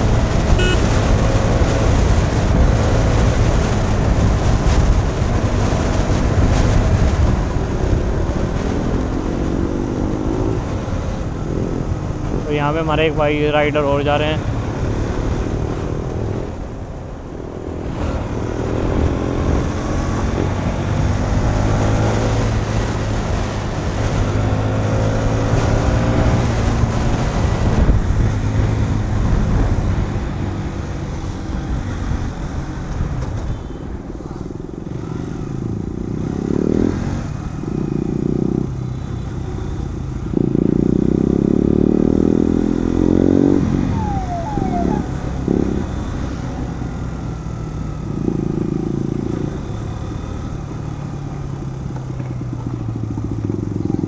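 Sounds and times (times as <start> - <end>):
motorcycle engine revving: 0.0 - 12.4, 17.6 - 33.0, 34.3 - 54.0
wind rush on microphone: 0.0 - 13.4, 14.3 - 24.7, 25.3 - 37.4.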